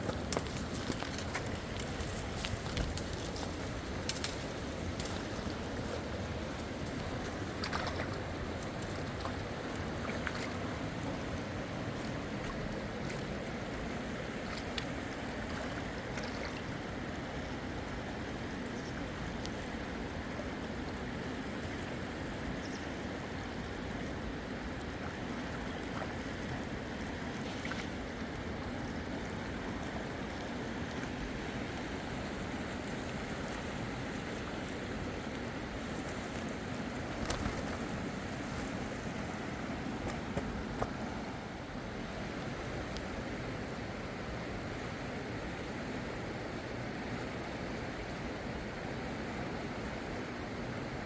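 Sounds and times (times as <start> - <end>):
fast river water rushing: 0.0 - 51.0.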